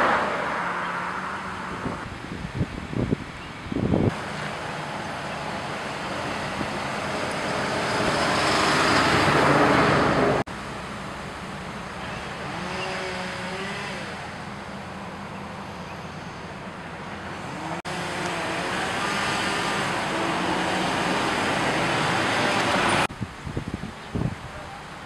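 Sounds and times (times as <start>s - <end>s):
vehicle passing close: 0.0s - 2.4s, 4.0s - 10.5s, 12.1s - 23.1s
steady traffic hum: 0.0s - 25.0s.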